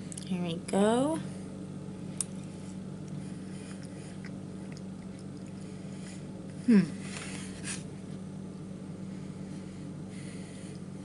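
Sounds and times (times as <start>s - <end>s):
steady low hum: 0.0s - 11.0s
person chewing: 2.2s - 5.9s.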